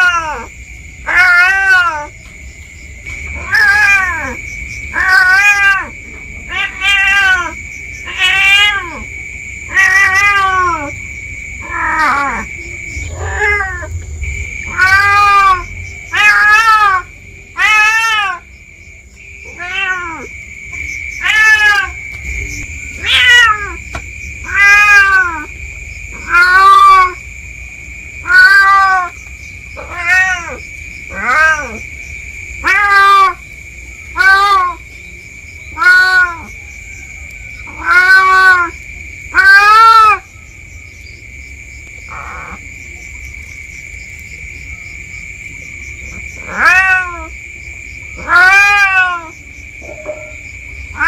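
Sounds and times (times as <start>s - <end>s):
cat meowing loudly: 0.0s - 2.2s, 3.4s - 9.1s, 9.7s - 11.0s, 11.6s - 12.5s, 13.1s - 14.0s, 14.7s - 18.5s, 19.4s - 20.3s, 21.2s - 22.0s, 23.0s - 25.5s, 26.1s - 27.2s, 28.2s - 29.2s, 29.8s - 31.8s, 32.6s - 33.4s, 34.1s - 34.9s, 35.7s - 36.6s, 37.6s - 40.3s, 42.1s - 42.6s, 46.4s - 47.4s, 48.2s - 51.0s
high-pitched whine: 49.8s - 50.9s.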